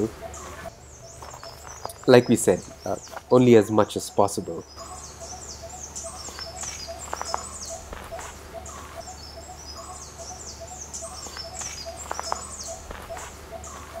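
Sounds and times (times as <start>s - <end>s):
birds chirping: 0.0s - 14.0s
low steady hum: 0.0s - 14.0s
sharp clicks: 0.4s - 3.4s, 6.0s - 8.9s, 11.0s - 14.0s.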